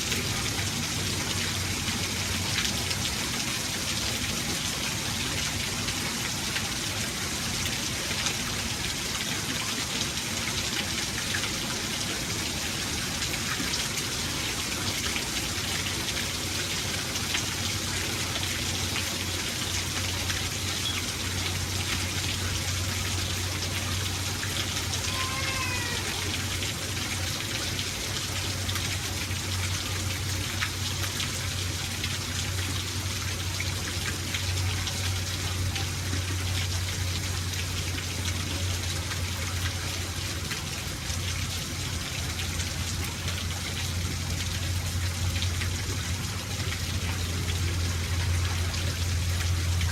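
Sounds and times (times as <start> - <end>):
rain falling: 0.0 - 49.9
low steady rumble: 31.6 - 49.9.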